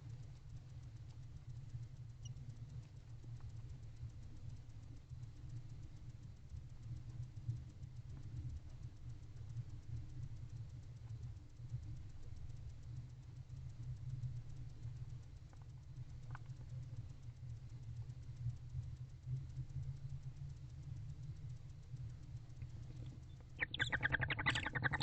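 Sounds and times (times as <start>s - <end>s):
steady low hum: 0.0s - 25.0s
barn owl chittering: 23.6s - 25.0s.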